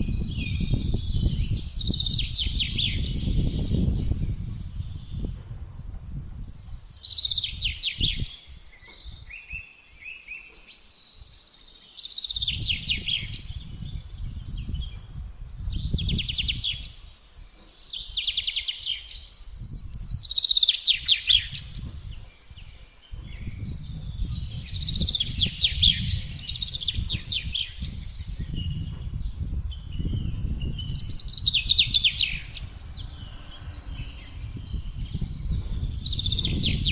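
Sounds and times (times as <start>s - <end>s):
songbird trilling: 0.0s - 5.3s, 6.7s - 36.9s
gusting wind rumble: 0.0s - 10.1s, 12.3s - 36.9s.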